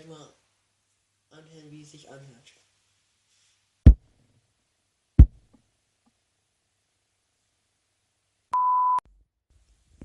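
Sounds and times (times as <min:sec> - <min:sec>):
short electronic beep: 0:08.6 - 0:09.0.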